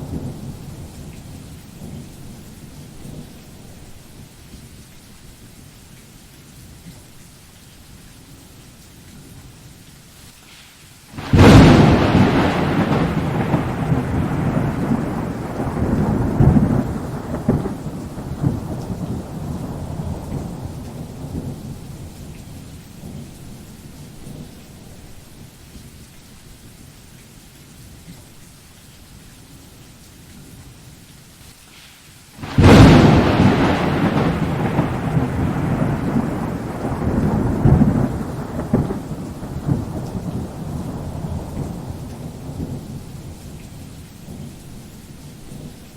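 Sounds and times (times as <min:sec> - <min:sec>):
thunder rumbling: 0:00.0 - 0:04.3, 0:11.2 - 0:25.4, 0:32.4 - 0:45.9
steady rain: 0:00.0 - 0:45.9
loud thunderclap: 0:11.2 - 0:23.3, 0:32.4 - 0:43.4.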